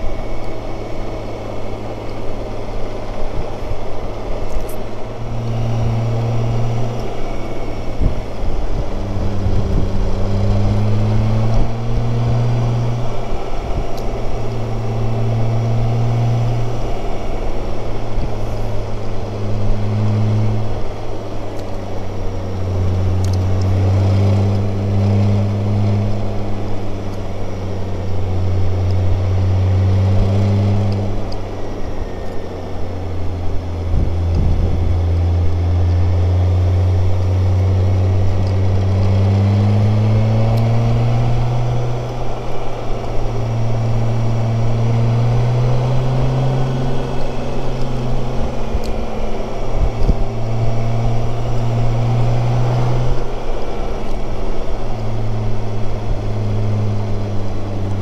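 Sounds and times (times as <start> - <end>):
motorcycle engine running: 0.0 - 58.0
wind rushing noise: 33.8 - 35.1.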